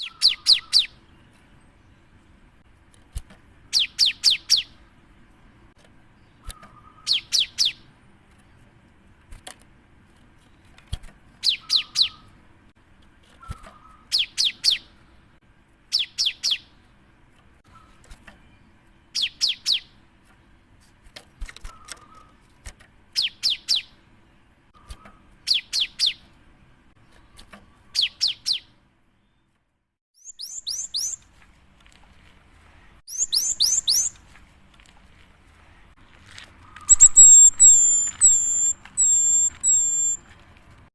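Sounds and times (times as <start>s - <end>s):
bird singing high notes: 33.1s - 34.1s, 36.8s - 40.2s.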